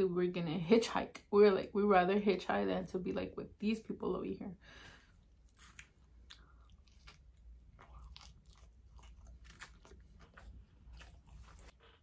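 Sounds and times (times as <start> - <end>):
person chewing food: 5.1 - 12.0
wet mouth clicks: 5.6 - 11.3.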